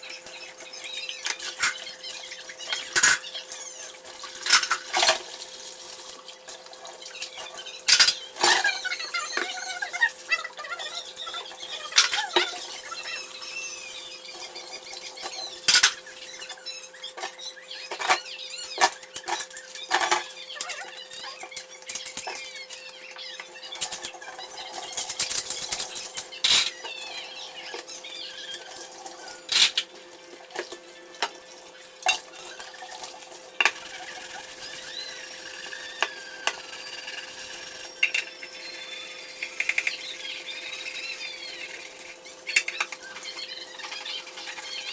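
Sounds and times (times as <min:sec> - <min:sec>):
dishes and cutlery clattering: 0:01.1 - 0:03.4, 0:04.1 - 0:05.5, 0:06.5 - 0:09.8, 0:11.3 - 0:13.2, 0:15.2 - 0:16.2, 0:17.1 - 0:22.8, 0:28.5 - 0:29.9, 0:32.0 - 0:34.8, 0:38.0 - 0:38.4.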